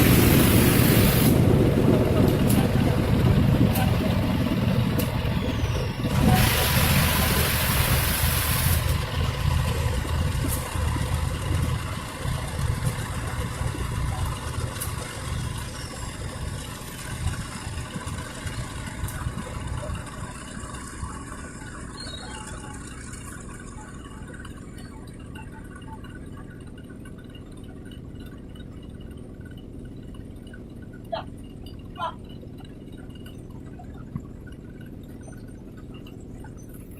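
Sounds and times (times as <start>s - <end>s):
air hissing: 0.0s - 1.4s, 6.1s - 9.0s
diesel locomotive engine rumbling: 0.0s - 36.9s.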